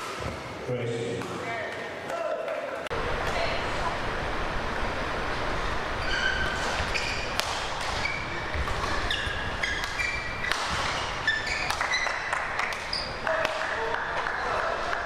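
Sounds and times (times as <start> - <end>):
shoes squeaking on court floor: 6.0 - 14.0
racket hitting shuttlecock: 6.4 - 14.7.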